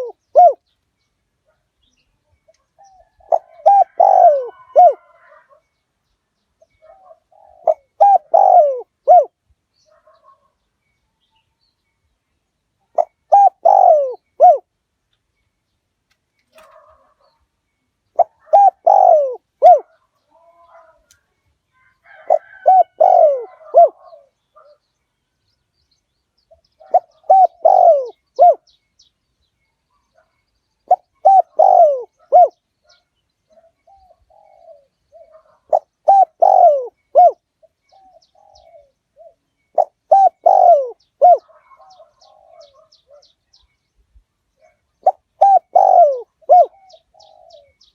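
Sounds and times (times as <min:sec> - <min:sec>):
dove cooing: 0:00.0 - 0:00.6, 0:02.8 - 0:05.6, 0:06.6 - 0:10.4, 0:12.9 - 0:14.7, 0:16.5 - 0:17.4, 0:18.1 - 0:21.2, 0:22.0 - 0:24.8, 0:26.5 - 0:28.8, 0:30.2 - 0:43.3, 0:44.6 - 0:47.9
faint bird calls: 0:00.0 - 0:00.8, 0:01.4 - 0:05.8, 0:06.6 - 0:10.6, 0:12.8 - 0:14.8, 0:16.4 - 0:25.0, 0:26.5 - 0:29.1, 0:29.7 - 0:43.7, 0:44.6 - 0:47.9.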